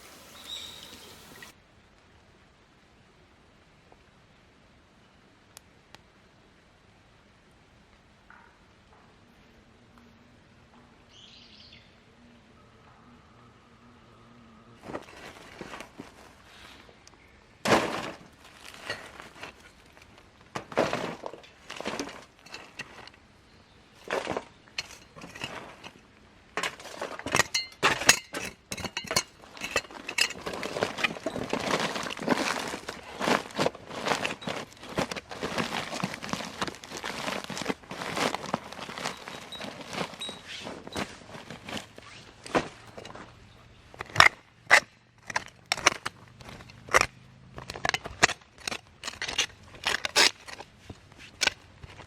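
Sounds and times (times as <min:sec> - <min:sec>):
clatter of knocks and clicks: 0:26.6 - 0:33.0.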